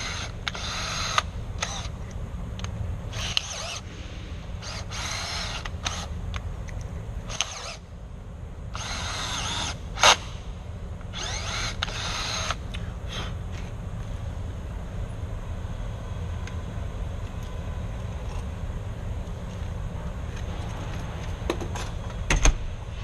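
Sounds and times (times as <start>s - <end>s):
power drill whining: 0.0s - 1.9s, 3.1s - 3.8s, 4.6s - 6.1s, 7.3s - 7.8s, 8.7s - 10.2s, 11.1s - 13.4s.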